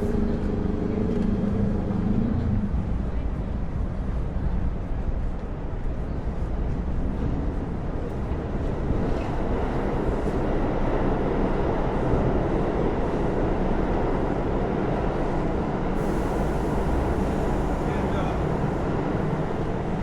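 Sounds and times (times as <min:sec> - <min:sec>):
heavy vehicle rumble: 0:00.0 - 0:20.0.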